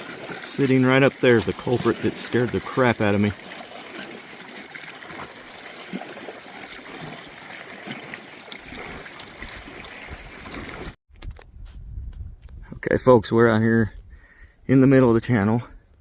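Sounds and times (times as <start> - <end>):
water lapping around a kayak: 0.0 - 11.0.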